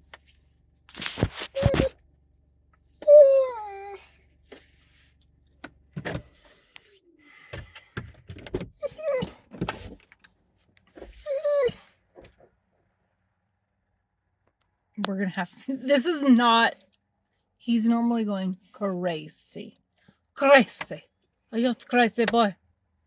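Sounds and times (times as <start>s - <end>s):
dog whining: 1.4s - 2.0s, 3.0s - 4.1s, 8.7s - 9.5s, 11.0s - 12.0s.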